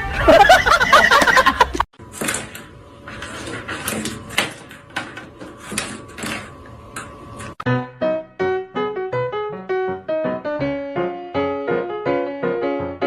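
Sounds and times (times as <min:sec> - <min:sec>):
knocks and clatters: 0:02.0 - 0:07.6.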